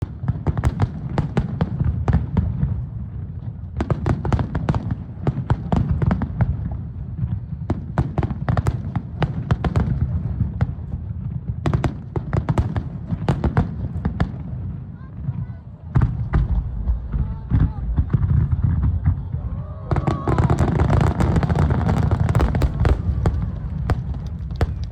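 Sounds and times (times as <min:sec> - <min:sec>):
fireworks bangs and crackles: 0:00.0 - 0:24.9
deep rumble of booms: 0:15.9 - 0:24.9.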